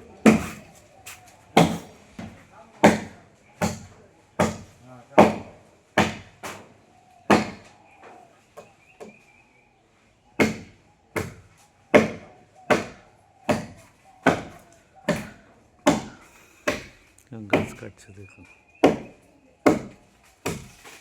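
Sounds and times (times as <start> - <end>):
blade chopping into tree trunk: 19.7 - 21.0.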